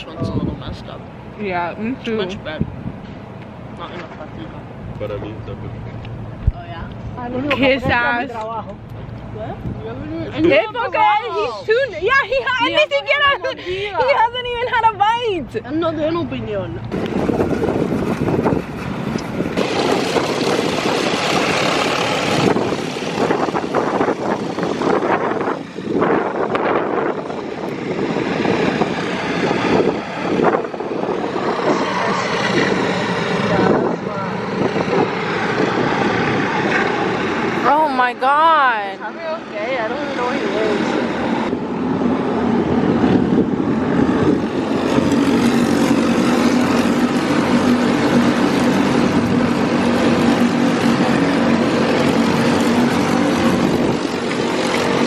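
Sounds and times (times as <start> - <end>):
vehicle engine noise: 0.0 - 55.0.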